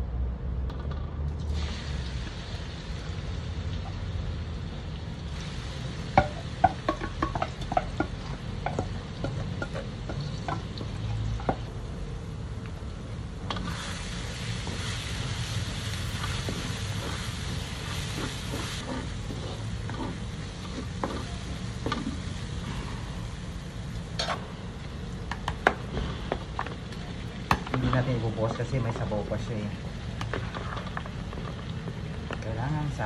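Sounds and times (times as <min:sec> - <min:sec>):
aromatics frying in oil: 0:00.7 - 0:33.0
loud bright sizzle: 0:01.4 - 0:33.0
wooden spatula scraping metal wok: 0:06.2 - 0:11.7, 0:14.6 - 0:22.9.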